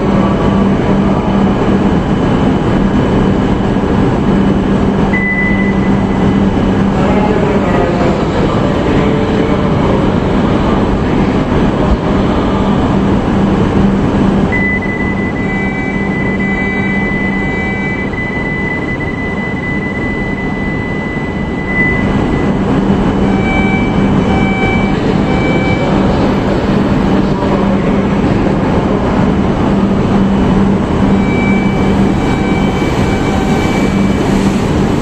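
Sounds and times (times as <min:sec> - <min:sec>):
train equipment humming: 0:00.0 - 0:35.0
high electronic tone: 0:05.0 - 0:07.2, 0:14.5 - 0:27.4, 0:30.0 - 0:35.0
short beeps: 0:05.1 - 0:06.5, 0:14.5 - 0:26.4, 0:31.1 - 0:34.4.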